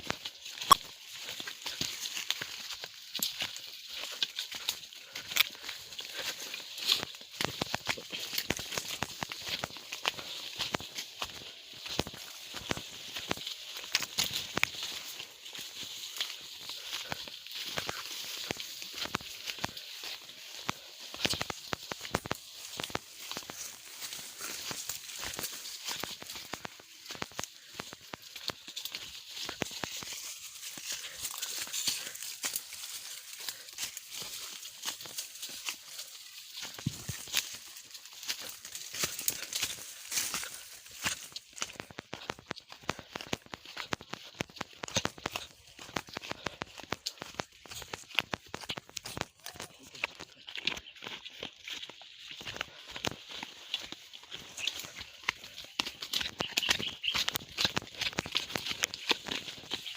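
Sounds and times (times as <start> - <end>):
footsteps crunching dry leaves: 0.0 - 59.9.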